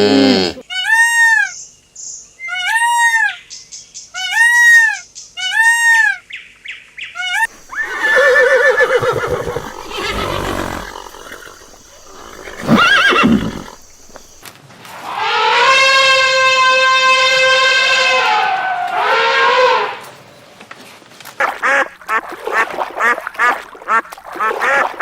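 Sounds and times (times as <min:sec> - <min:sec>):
high rise-and-fall animal calls: 0:07.5 - 0:14.4
horse breathing: 0:07.5 - 0:14.4
horse neighing: 0:07.5 - 0:14.4.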